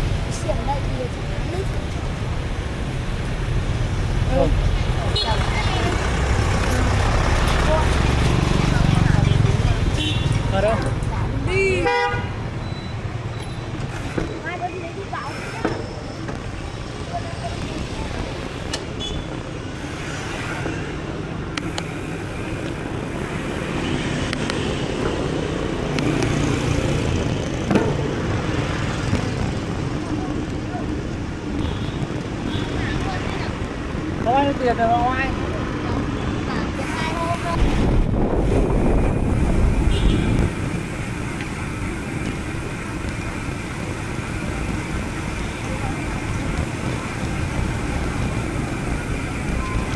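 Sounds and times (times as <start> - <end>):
bike tyres rolling: 0.0 - 11.4, 21.6 - 35.7, 36.8 - 49.9
rumbling wind: 36.7 - 49.9.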